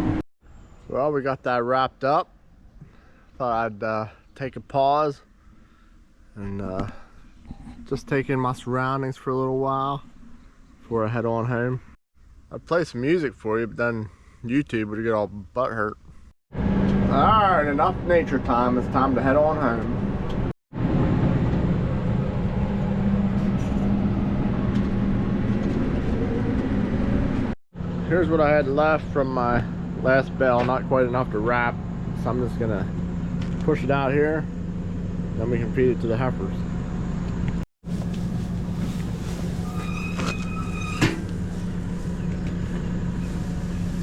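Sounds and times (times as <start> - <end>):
tractor engine droning: 16.6 - 37.2, 37.9 - 44.0
tractor engine running: 21.2 - 27.6, 37.9 - 44.0
metallic squeal: 38.6 - 44.0.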